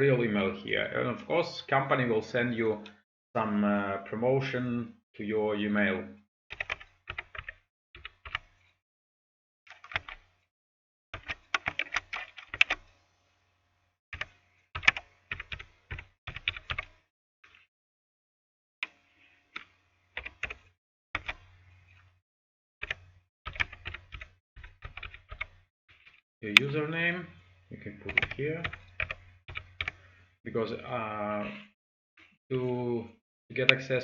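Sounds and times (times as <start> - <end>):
keyboard typing: 6.5 - 8.5, 11.2 - 12.8, 14.2 - 16.9, 19.6 - 20.6, 21.2 - 21.4, 22.8 - 25.5, 28.1 - 30.0.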